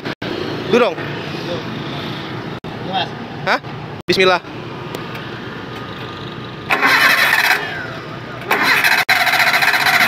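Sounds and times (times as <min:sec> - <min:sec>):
car engine starting: 0:06.6 - 0:10.0.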